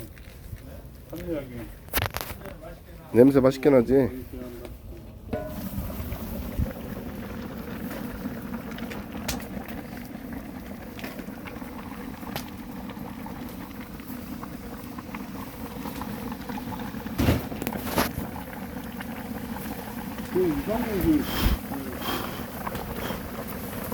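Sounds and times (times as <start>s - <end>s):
stew bubbling in a pot: 0.0s - 23.9s.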